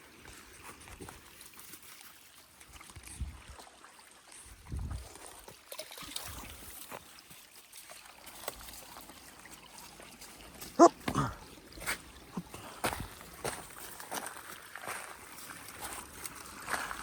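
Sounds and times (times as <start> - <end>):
dog yelping: 10.8 - 11.3.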